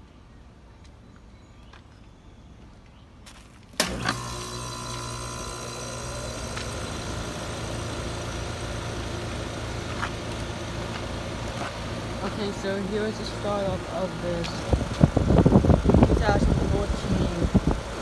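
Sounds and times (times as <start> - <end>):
heat pump switch click: 3.8 - 10.7
heat pump running hum: 3.8 - 18.0.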